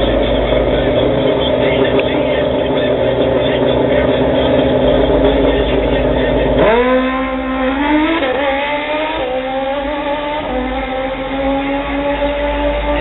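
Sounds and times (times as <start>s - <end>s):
motorcycle engine revving and accelerating: 0.0s - 13.0s.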